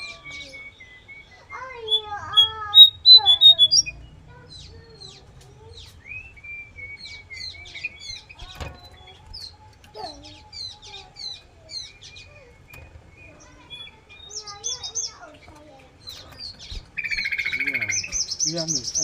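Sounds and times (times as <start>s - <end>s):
bird chirping and whistling: 0.0s - 4.1s, 5.8s - 8.4s.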